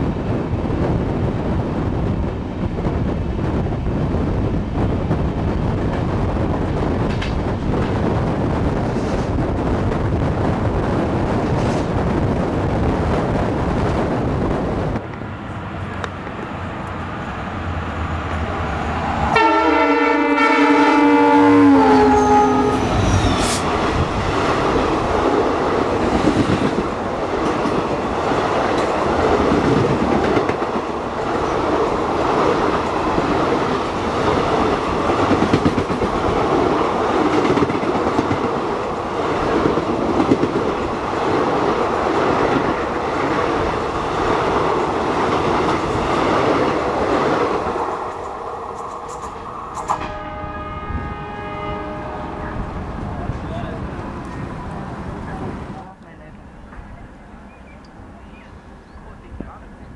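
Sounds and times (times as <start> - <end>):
train coaches rushing past: 4.0 - 59.9
train horn: 19.3 - 23.6, 49.9 - 52.7.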